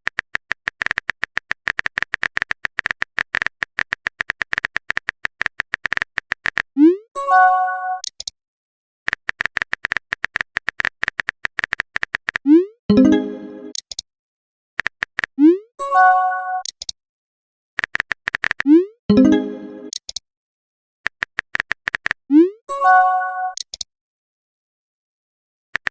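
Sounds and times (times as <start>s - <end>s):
rapid typing clicks: 0.0s - 6.7s, 9.1s - 12.4s, 14.8s - 15.3s, 17.8s - 18.7s, 21.1s - 22.2s.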